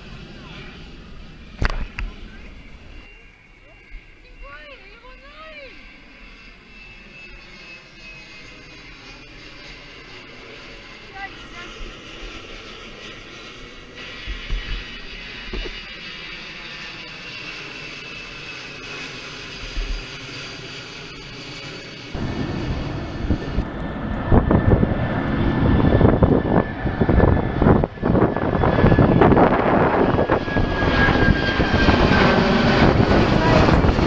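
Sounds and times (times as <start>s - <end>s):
jet engines whining: 0.0s - 34.0s
rough rushing jet noise: 10.0s - 21.2s, 22.0s - 34.0s.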